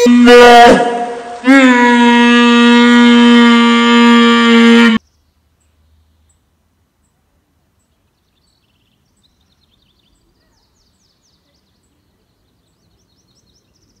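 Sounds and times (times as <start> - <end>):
small birds chirping and trilling: 7.8 - 14.0.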